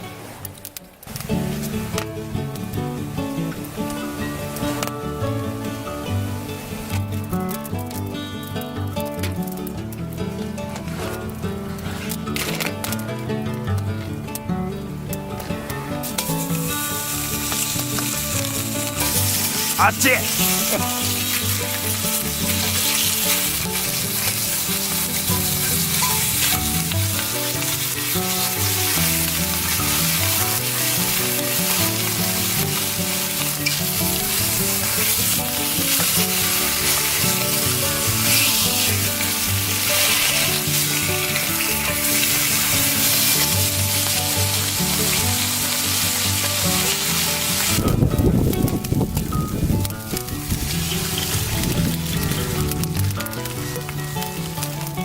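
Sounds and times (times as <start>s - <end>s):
food sizzling in oil: 16.0s - 55.0s.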